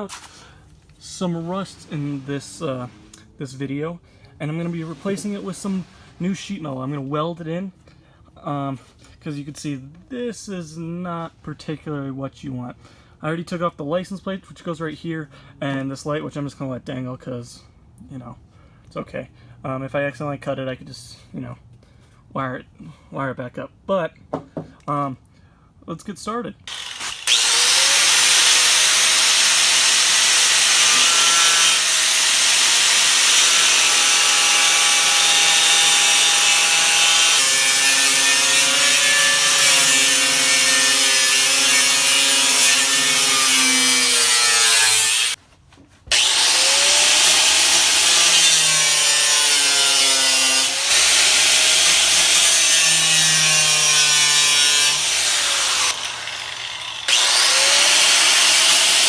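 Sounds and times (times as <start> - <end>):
power tool cutting sheet metal: 26.7 - 45.4, 46.1 - 59.0.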